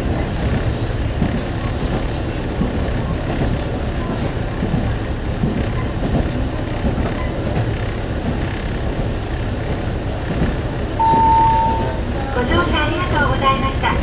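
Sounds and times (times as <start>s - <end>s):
railcar rumbling: 0.0s - 14.0s
announcement chime tone: 11.0s - 12.0s.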